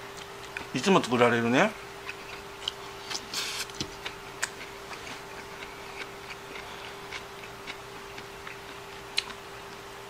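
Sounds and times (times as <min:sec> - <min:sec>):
faint hum: 0:00.0 - 0:10.0
chewing clicks: 0:02.0 - 0:09.4.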